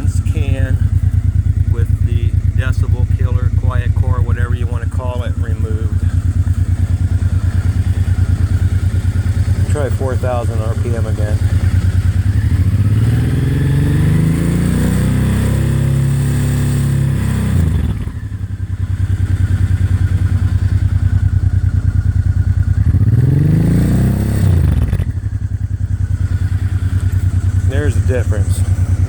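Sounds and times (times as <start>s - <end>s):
motorcycle engine revving and idling: 0.0s - 29.0s.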